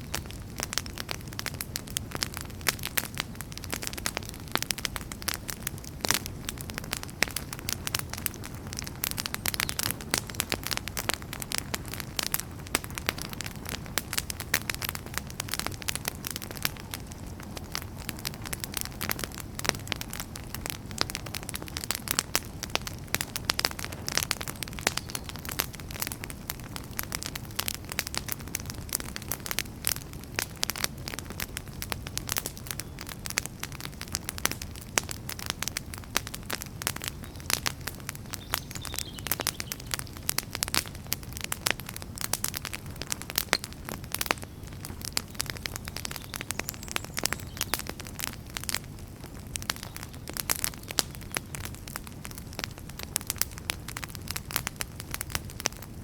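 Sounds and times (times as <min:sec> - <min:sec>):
fireplace logs crackling and popping: 0:00.0 - 0:56.0
low rumble of flames: 0:00.0 - 0:56.0.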